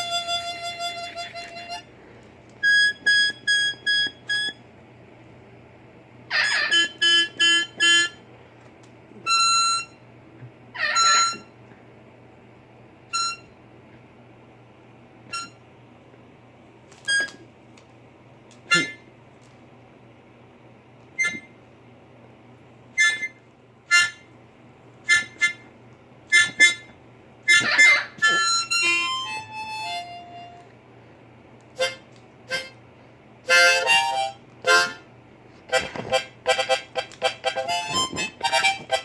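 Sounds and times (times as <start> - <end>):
harmonica playing short notes: 0.0 - 1.9, 2.6 - 4.6, 6.3 - 8.2, 9.3 - 10.0, 13.1 - 13.5, 18.7 - 19.0, 23.0 - 24.3, 25.0 - 25.7, 26.3 - 26.9, 27.5 - 30.6, 31.8 - 32.8, 33.5 - 35.1, 35.7 - 39.0
parrot calls: 6.3 - 7.2, 10.8 - 11.4, 27.5 - 29.0.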